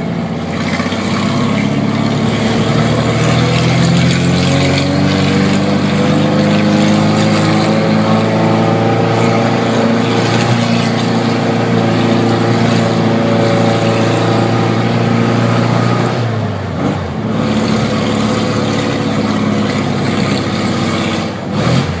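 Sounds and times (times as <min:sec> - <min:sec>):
car engine through straight exhaust: 0:00.0 - 0:22.0.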